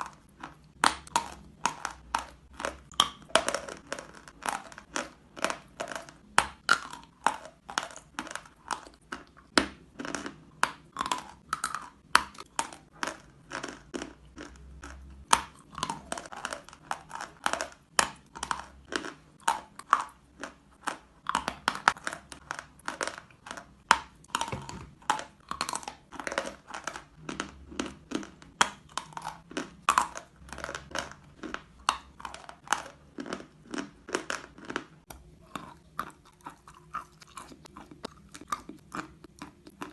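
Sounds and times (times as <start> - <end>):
chewing chalk crunches: 0.0 - 39.9.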